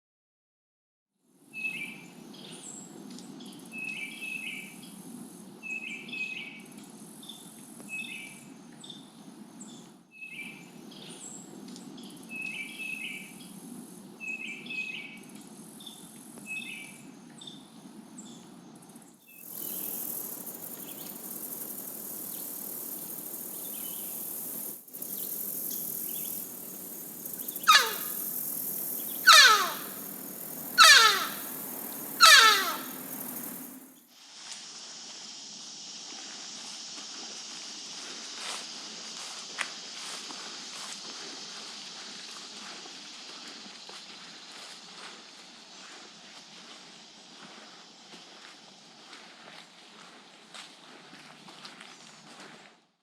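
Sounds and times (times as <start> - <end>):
high insect hiss: 1.4 - 52.2
birds chirping: 19.4 - 34.0
loud calls sliding down in pitch: 27.7 - 28.2, 29.2 - 30.1, 30.7 - 33.8.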